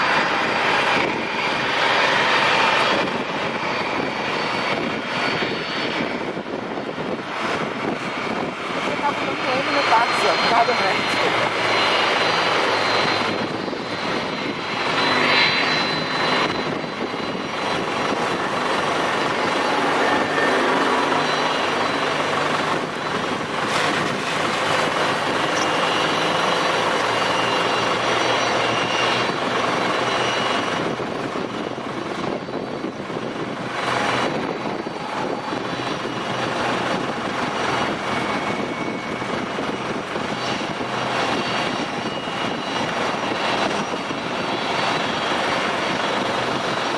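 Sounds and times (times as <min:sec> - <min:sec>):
jet engines running: 0:00.0 - 0:46.9.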